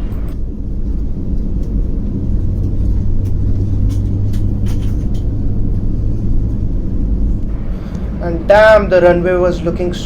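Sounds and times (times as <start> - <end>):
airliner cabin rumble: 0.0 - 10.0
low engine hum: 0.0 - 10.0
light knocks and rattles: 0.2 - 6.8.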